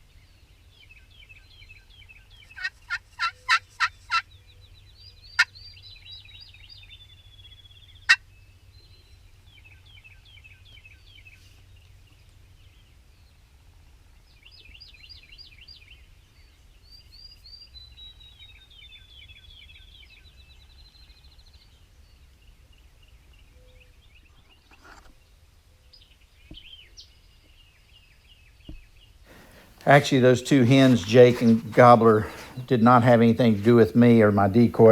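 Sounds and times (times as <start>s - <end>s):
songbirds singing: 0.0s - 34.9s
loud sharp bird notes: 29.3s - 34.9s.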